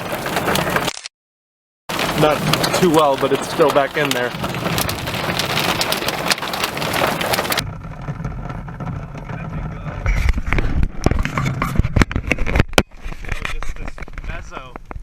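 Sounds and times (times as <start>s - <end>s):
low vehicle rumble: 1.9s - 12.6s
knocks and thumps: 1.9s - 15.0s.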